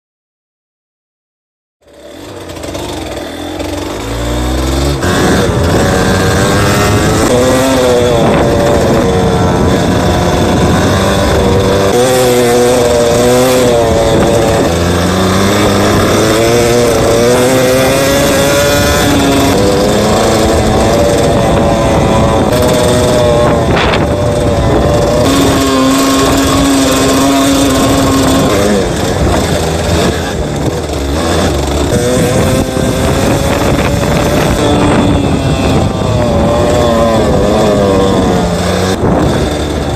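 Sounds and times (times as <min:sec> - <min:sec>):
two-stroke motorcycle engine revving: 0:01.8 - 0:39.9.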